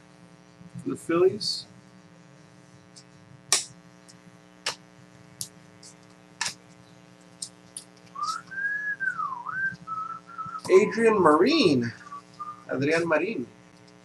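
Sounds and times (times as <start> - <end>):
person whistling: 8.2 - 11.2, 11.8 - 12.7.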